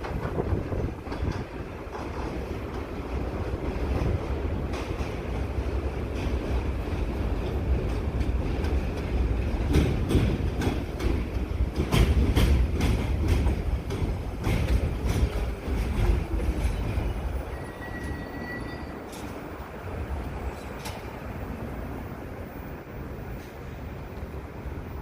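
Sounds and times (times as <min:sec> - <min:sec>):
train wheels clacking: 0:00.0 - 0:19.7, 0:20.3 - 0:21.3
train low rumble: 0:00.0 - 0:25.0.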